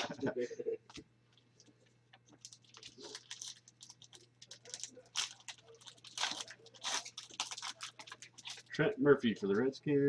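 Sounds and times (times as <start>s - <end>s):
card pack wrapper crinkling: 2.3s - 8.7s.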